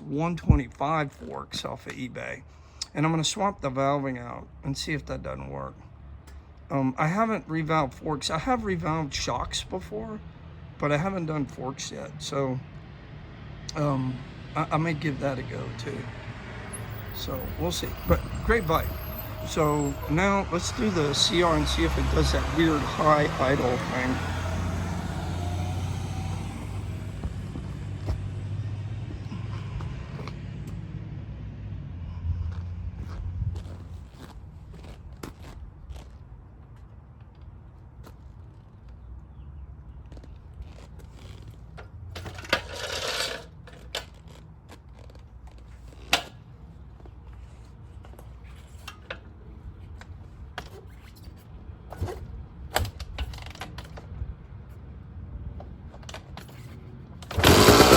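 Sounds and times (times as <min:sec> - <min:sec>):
two-stroke motorcycle engine idling: 0:57.2 - 0:57.9.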